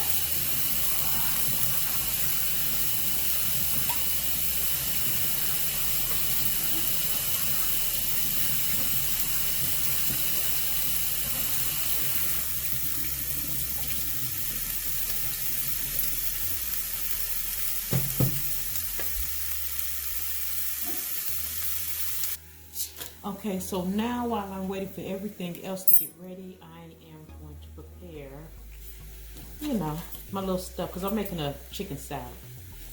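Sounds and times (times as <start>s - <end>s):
chicken sizzling on a grill: 0.0s - 23.1s.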